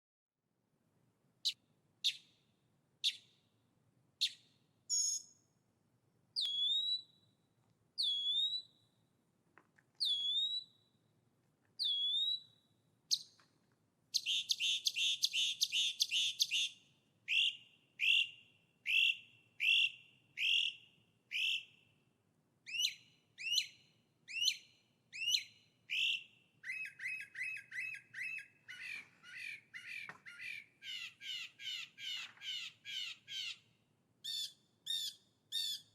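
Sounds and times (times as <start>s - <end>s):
songbird singing: 1.4s - 2.4s, 3.0s - 3.4s, 4.2s - 5.6s, 6.4s - 7.4s, 8.0s - 9.0s, 10.0s - 11.0s, 11.8s - 13.5s, 14.1s - 21.9s, 22.6s - 35.9s.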